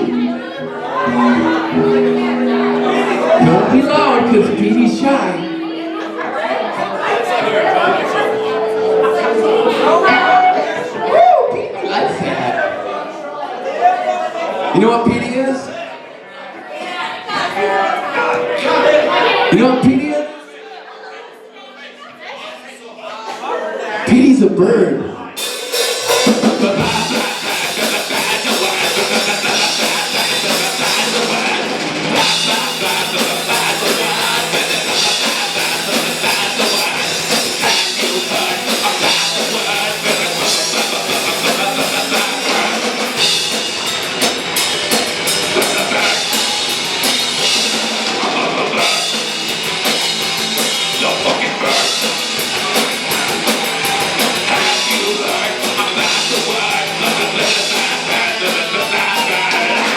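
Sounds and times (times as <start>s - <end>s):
live rock band playing: 0.0s - 12.4s, 18.0s - 20.0s, 25.4s - 59.9s
drum kit with cymbals: 25.4s - 59.9s.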